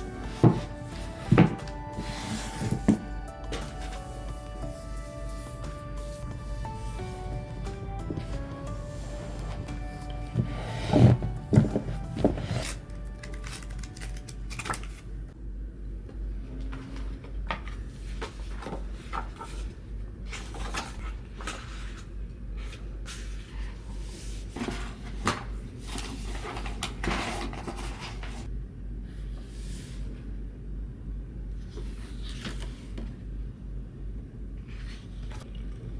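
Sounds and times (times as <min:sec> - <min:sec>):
household objects clicking and knocking: 0:00.0 - 0:04.7, 0:05.6 - 0:15.0
steady low hum: 0:00.0 - 0:20.4, 0:28.4 - 0:35.9.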